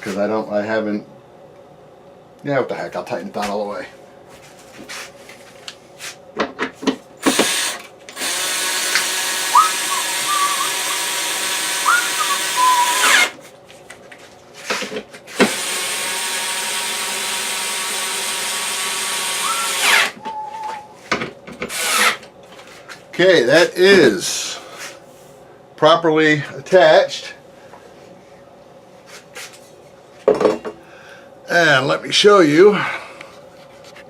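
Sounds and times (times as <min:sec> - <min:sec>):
drill clicks: 0:07.2 - 0:13.4
power drill driving bolts: 0:07.2 - 0:13.4, 0:15.4 - 0:20.2, 0:21.7 - 0:22.2.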